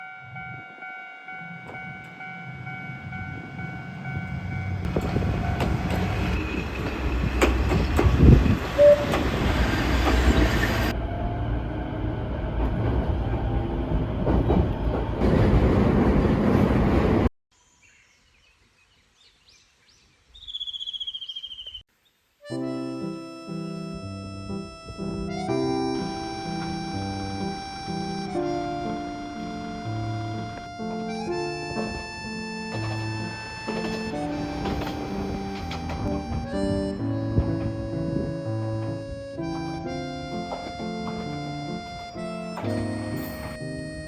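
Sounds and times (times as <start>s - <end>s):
train engine rumble: 0.2s - 17.3s, 23.9s - 44.0s
train wheel clatter: 3.6s - 10.9s, 31.4s - 36.8s.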